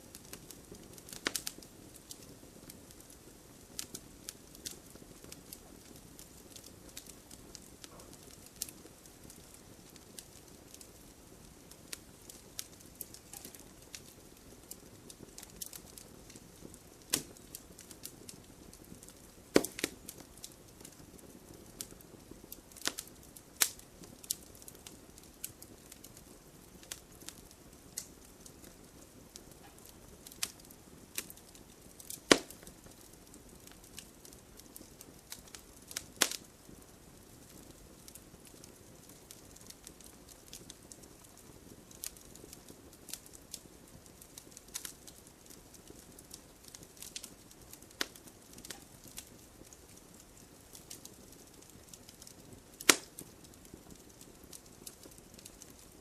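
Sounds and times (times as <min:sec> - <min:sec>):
fire crackling: 0:00.0 - 0:56.0.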